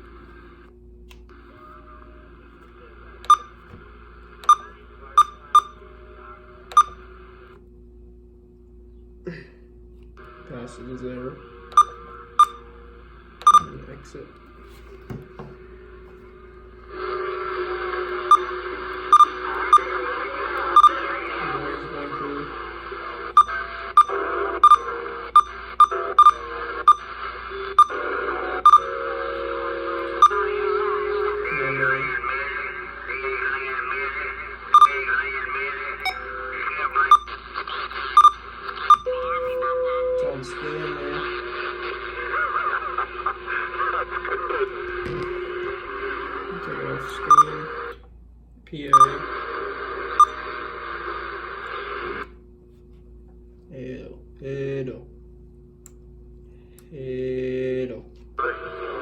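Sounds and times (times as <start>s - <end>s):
faint radio hiss: 1.3s - 7.6s, 26.5s - 48.0s, 48.7s - 52.3s
held tones from speaker: 3.2s - 3.8s, 4.4s - 5.9s, 6.6s - 7.2s, 11.7s - 12.7s, 13.4s - 14.2s, 18.3s - 29.0s, 30.0s - 41.3s, 43.7s - 48.0s, 48.8s - 49.4s
short sharp beeps: 3.3s - 3.6s, 4.4s - 5.8s, 6.7s - 7.0s, 11.8s - 12.6s, 13.4s - 13.8s, 18.3s - 18.5s, 19.1s - 19.9s, 20.8s - 21.0s, 23.4s - 27.1s, 28.7s - 28.9s, 34.8s - 35.0s, 38.2s - 39.2s, 47.1s - 47.6s, 48.9s - 49.2s.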